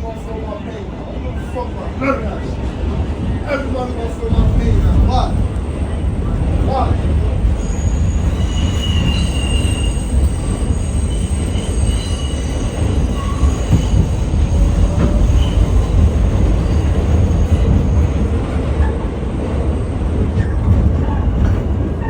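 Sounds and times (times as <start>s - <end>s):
subway train rumble: 0.0s - 22.0s
wheel squeals: 7.6s - 18.0s.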